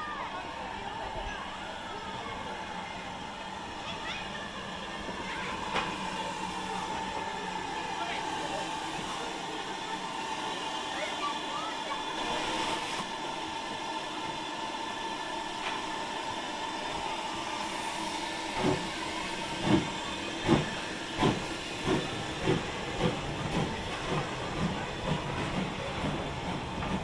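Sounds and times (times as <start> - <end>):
steam locomotive hissing: 0.0 - 27.0.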